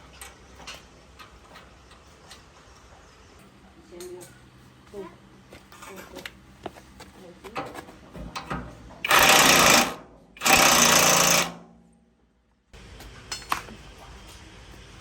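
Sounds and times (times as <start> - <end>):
power tool hammering rattle: 8.4 - 11.8.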